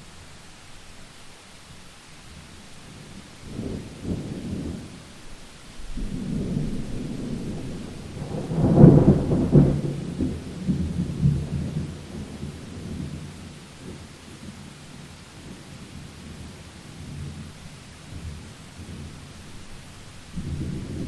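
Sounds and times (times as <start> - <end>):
steady rain: 0.0 - 21.0
thunder rolling: 5.8 - 13.3, 20.3 - 21.0.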